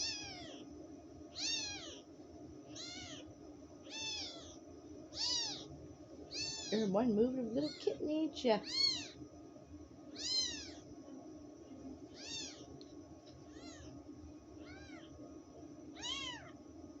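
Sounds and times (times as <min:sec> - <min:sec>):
kittens mewing: 0:00.0 - 0:00.6, 0:01.3 - 0:02.1, 0:02.7 - 0:03.3, 0:03.9 - 0:05.7, 0:06.3 - 0:06.9, 0:07.6 - 0:08.0, 0:08.6 - 0:09.2, 0:10.1 - 0:10.9, 0:12.1 - 0:12.7, 0:13.5 - 0:14.0, 0:14.6 - 0:15.1, 0:16.0 - 0:16.6
faint steady low hum: 0:00.0 - 0:17.0.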